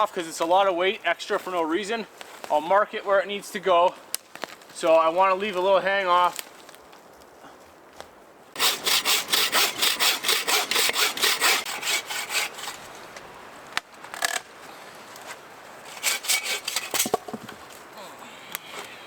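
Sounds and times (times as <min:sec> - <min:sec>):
hand saw cutting wood: 0:08.6 - 0:13.0, 0:15.9 - 0:17.4.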